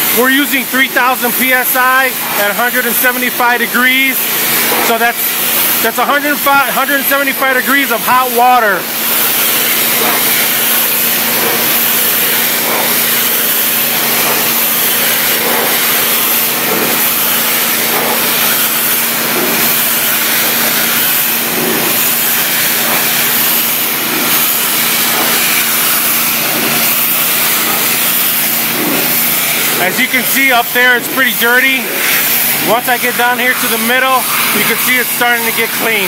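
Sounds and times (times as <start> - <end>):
machine humming: 0.0 - 36.0
pressure washer spray hissing: 0.0 - 36.0.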